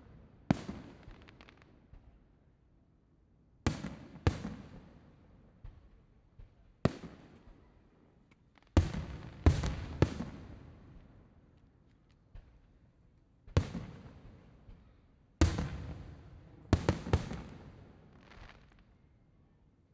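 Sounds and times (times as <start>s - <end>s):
fireworks booming with echo: 8.8s - 10.7s, 15.4s - 18.7s
faint firework pops: 13.5s - 19.0s.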